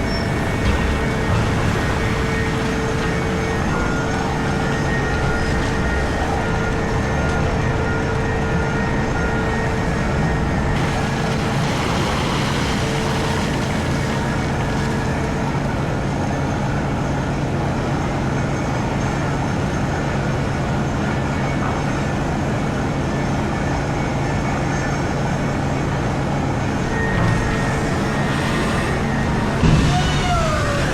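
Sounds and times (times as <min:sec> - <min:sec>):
hydraulic hissing wash: 0:00.0 - 0:07.9, 0:08.8 - 0:16.6, 0:26.5 - 0:30.9
whine tones: 0:00.0 - 0:17.0, 0:26.2 - 0:30.9
heavy excavator engine drone: 0:00.0 - 0:30.9.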